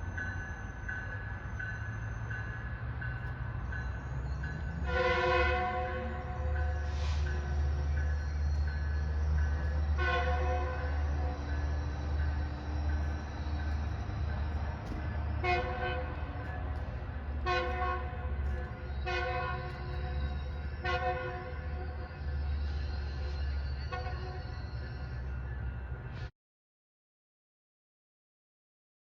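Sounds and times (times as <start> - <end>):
train rumbling: 0.0 - 26.3
train air horn blasts: 4.8 - 7.7, 9.9 - 11.4, 15.3 - 16.4, 17.4 - 20.2, 20.8 - 22.0, 23.8 - 24.6.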